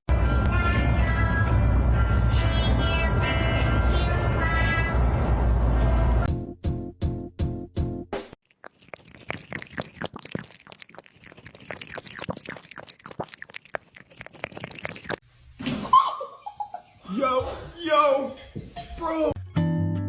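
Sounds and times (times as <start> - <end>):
crunchy chewing: 8.4 - 15.2.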